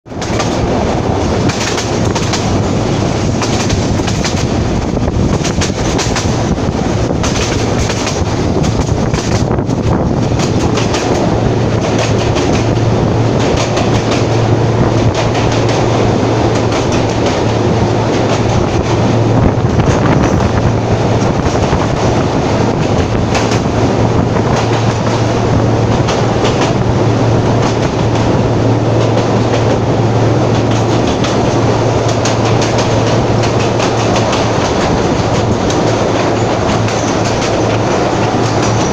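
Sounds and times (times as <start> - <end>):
train rumbling and rattling: 0.0 - 38.9
wheels clicking over rails: 0.1 - 38.9.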